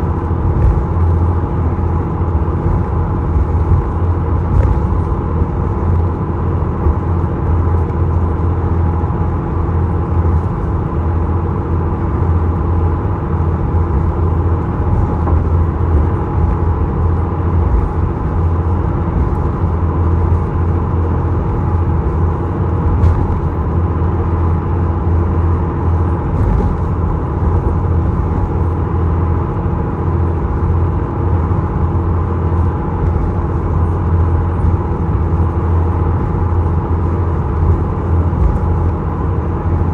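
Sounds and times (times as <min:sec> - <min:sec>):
ferry engine drone: 0:00.0 - 0:39.9.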